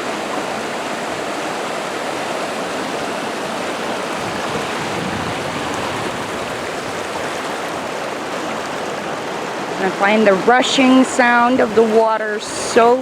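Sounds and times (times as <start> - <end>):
river water rushing over rocks: 0.0 - 13.0.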